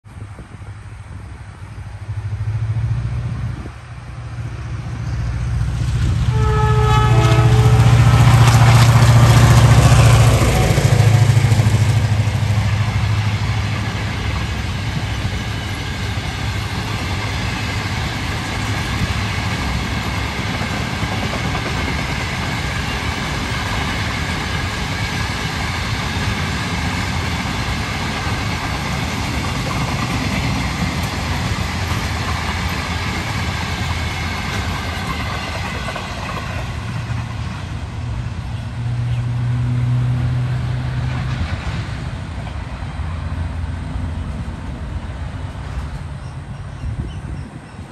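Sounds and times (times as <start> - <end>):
locomotive low drone: 0.1 - 47.9
train horn: 6.1 - 8.6.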